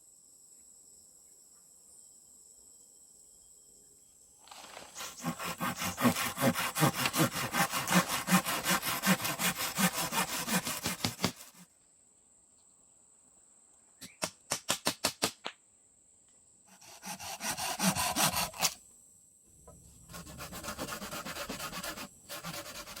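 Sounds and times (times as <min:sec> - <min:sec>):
wood sawn by hand: 0:04.5 - 0:11.7, 0:16.7 - 0:18.8, 0:19.7 - 0:23.0.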